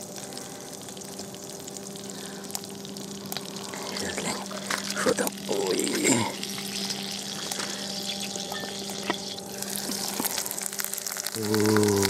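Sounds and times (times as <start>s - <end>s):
potatoes sizzling in a frying pan: 0.0s - 12.0s.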